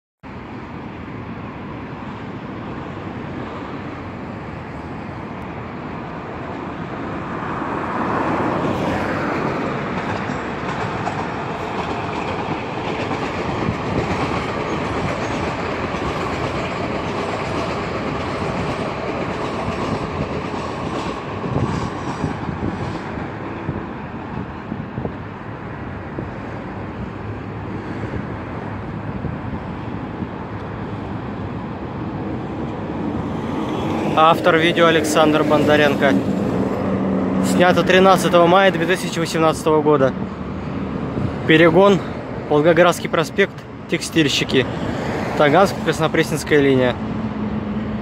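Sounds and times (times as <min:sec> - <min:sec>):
metro train running past: 0:00.3 - 0:48.0
wheels clicking over rail joints: 0:09.4 - 0:23.5.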